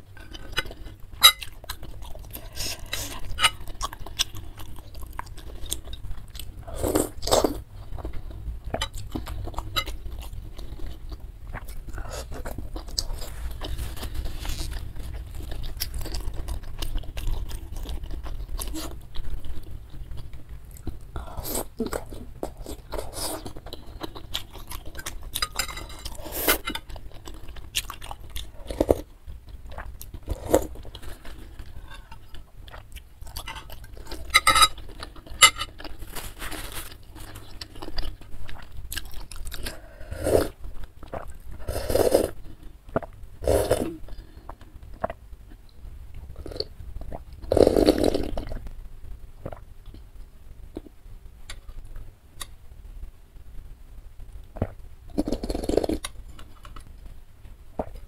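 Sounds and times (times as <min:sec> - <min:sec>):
cutlery clinking on a bowl: 0:00.6 - 0:01.6, 0:34.3 - 0:34.8, 0:35.4 - 0:35.7.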